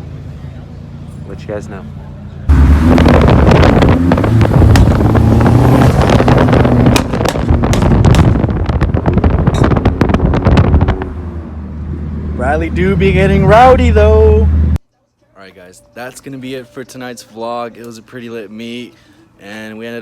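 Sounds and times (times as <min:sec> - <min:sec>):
car engine revving: 0:02.4 - 0:14.8
exhaust crackling and popping: 0:02.5 - 0:14.4.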